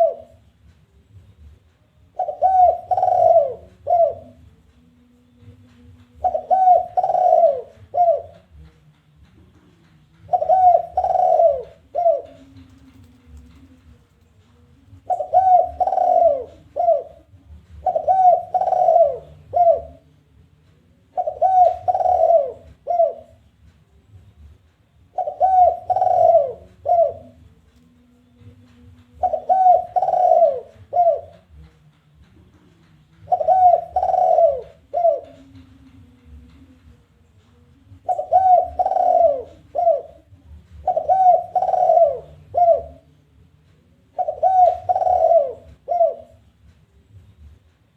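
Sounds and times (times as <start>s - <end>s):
dove cooing: 0.0s - 0.4s, 2.1s - 4.4s, 6.2s - 8.6s, 10.2s - 20.1s, 21.1s - 23.5s, 25.1s - 31.7s, 33.2s - 36.4s, 37.9s - 43.1s, 44.0s - 46.5s.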